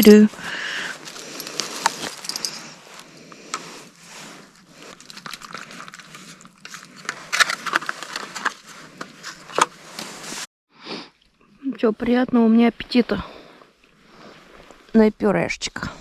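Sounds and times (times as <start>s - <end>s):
plastic packaging crinkling: 0.8s - 2.7s, 4.5s - 8.8s
clicks and scrapes: 1.0s - 2.8s, 4.4s - 10.5s.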